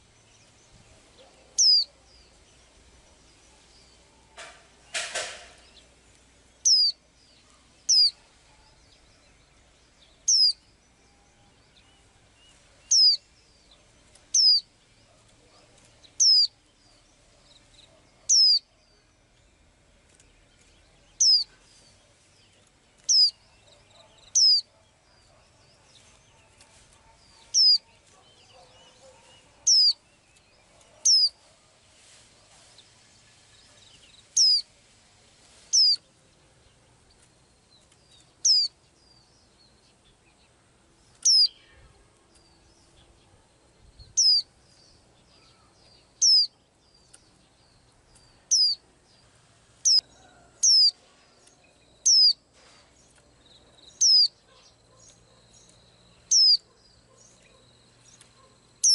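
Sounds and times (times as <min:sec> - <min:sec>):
small bird calling: 0:00.9 - 0:02.3, 0:06.6 - 0:08.7, 0:10.2 - 0:10.6, 0:12.8 - 0:13.3, 0:14.2 - 0:14.7, 0:16.1 - 0:16.6, 0:17.8 - 0:18.7, 0:21.1 - 0:21.8, 0:23.0 - 0:30.0, 0:30.6 - 0:31.6, 0:34.4 - 0:34.7, 0:35.7 - 0:36.0, 0:38.2 - 0:38.8, 0:41.1 - 0:42.1, 0:44.0 - 0:44.6, 0:45.3 - 0:47.2, 0:48.2 - 0:48.8, 0:49.8 - 0:52.4, 0:53.9 - 0:58.9
rustling: 0:31.8 - 0:33.5.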